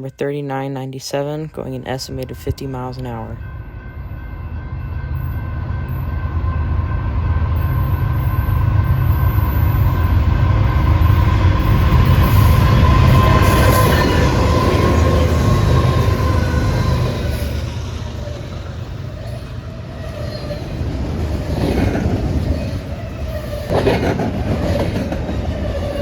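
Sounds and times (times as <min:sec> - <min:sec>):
freight train passing: 0:01.1 - 0:26.0.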